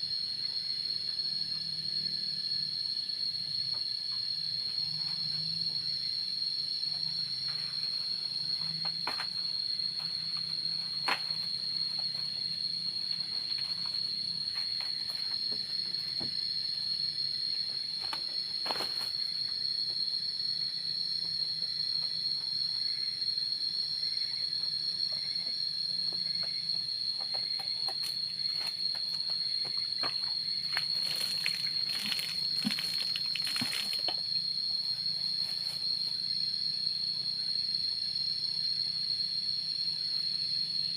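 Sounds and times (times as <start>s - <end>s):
insects droning: 0.0s - 40.9s
rustling: 30.6s - 34.2s.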